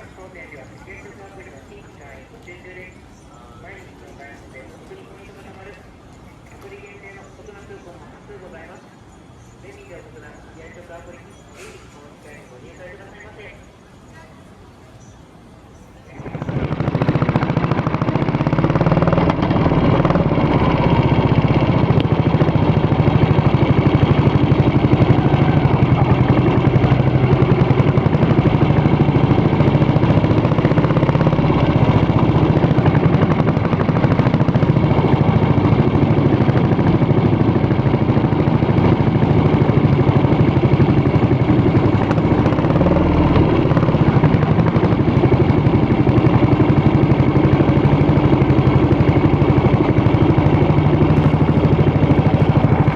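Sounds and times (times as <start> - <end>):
motorcycle engine running: 16.0 - 52.9.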